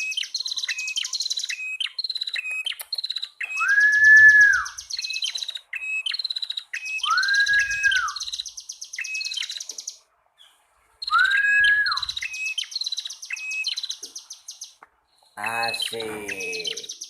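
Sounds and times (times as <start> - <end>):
low arched bird whistle: 0.0 - 2.6, 3.4 - 9.9, 11.0 - 14.8
bird buzzy chattering trill: 15.4 - 17.0.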